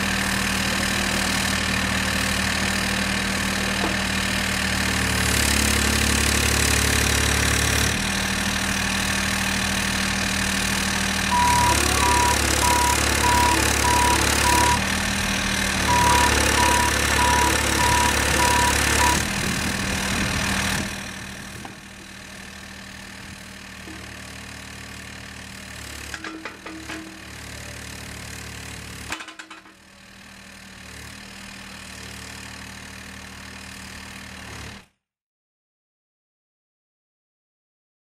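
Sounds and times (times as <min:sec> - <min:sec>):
excavator diesel engine running: 0:00.0 - 0:29.2
travel alarm beeping: 0:11.3 - 0:14.8, 0:15.9 - 0:19.3.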